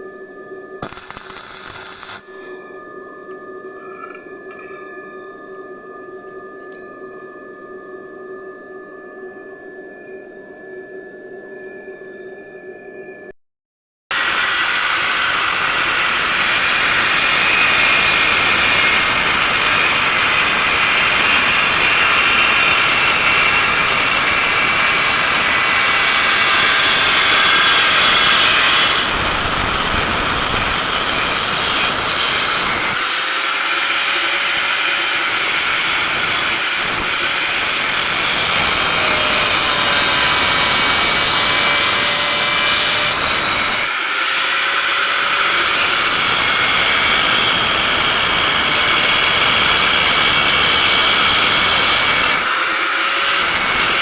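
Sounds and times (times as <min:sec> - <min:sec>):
angle grinder grinding steel: 0:00.8 - 0:02.4, 0:14.1 - 0:54.0.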